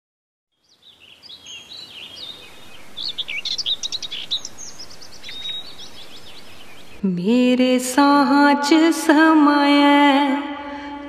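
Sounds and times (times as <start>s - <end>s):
small birds twittering: 0.5s - 7.0s
faint steady hiss: 0.6s - 9.3s.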